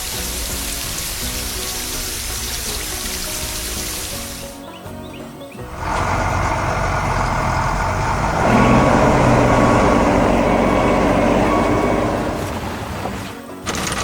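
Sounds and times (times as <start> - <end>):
heavy vehicle engine running: 5.6 - 14.0.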